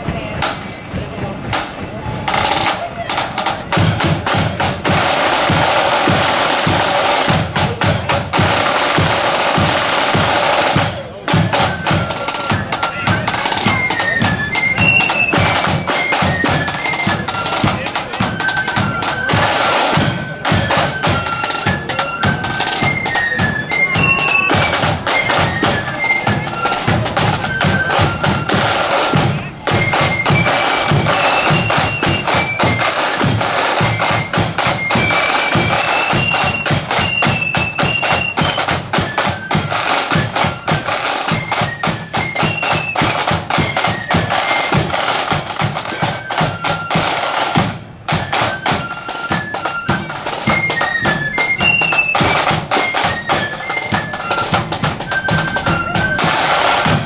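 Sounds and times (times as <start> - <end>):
fast steady drumming: 0.0 - 57.0
shrill high band melody: 2.2 - 57.0.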